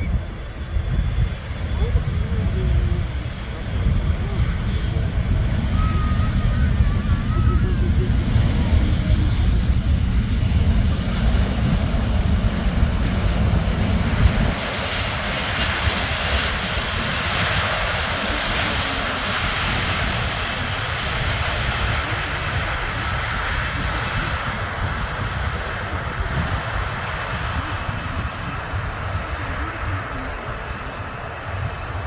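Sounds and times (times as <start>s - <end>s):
heavy low rumble: 0.0s - 32.0s
jet engines passing overhead: 0.0s - 32.0s.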